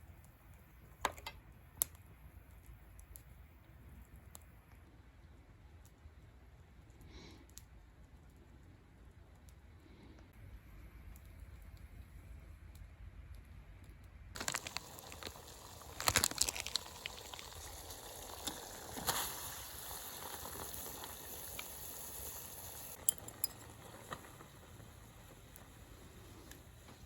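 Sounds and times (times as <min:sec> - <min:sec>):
campfire hiss: 0:14.4 - 0:27.0
sharp clicks and clinks: 0:23.0 - 0:23.7.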